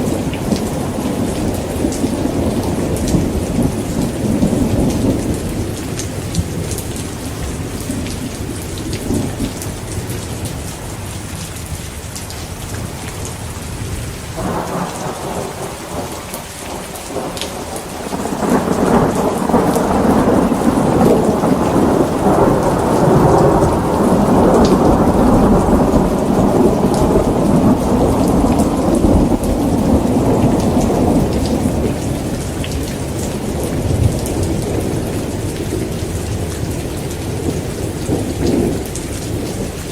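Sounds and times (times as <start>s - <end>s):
heavy rain falling: 0.0s - 39.9s
rolling thunder: 13.9s - 39.9s.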